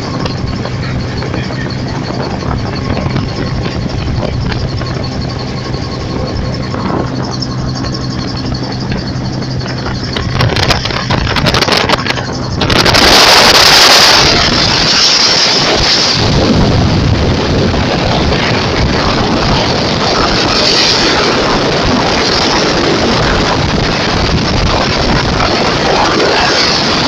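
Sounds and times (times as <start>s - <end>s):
loud rushing noise: 0.0s - 27.0s
motor vehicle humming: 0.0s - 27.0s.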